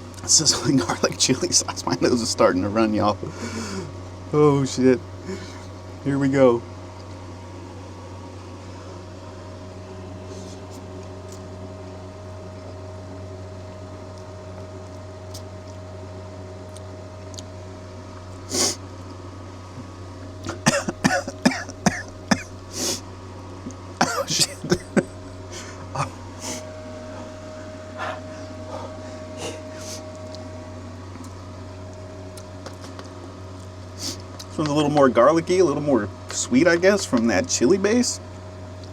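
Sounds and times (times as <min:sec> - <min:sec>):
steady low hum: 0:00.0 - 0:38.9
person coughing: 0:00.4 - 0:01.5, 0:20.5 - 0:22.6, 0:24.0 - 0:26.6.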